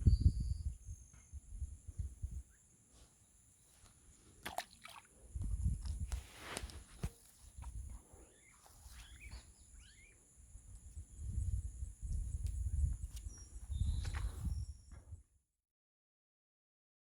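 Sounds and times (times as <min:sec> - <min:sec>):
birds chirping: 0:08.2 - 0:10.2.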